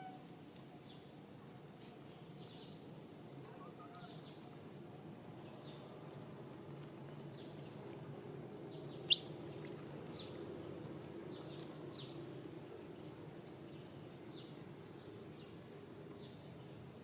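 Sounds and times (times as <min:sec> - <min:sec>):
small birds chirping: 0:08.7 - 0:10.4.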